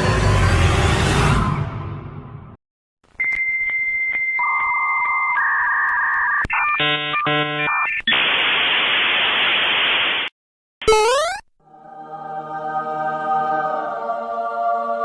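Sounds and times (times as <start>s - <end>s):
electronic beeping tones: 5.4s - 8.1s, 10.9s - 11.4s
static hiss: 8.1s - 10.3s
choppy buzzing tone: 10.9s - 11.4s
rising electronic zap: 10.9s - 11.4s.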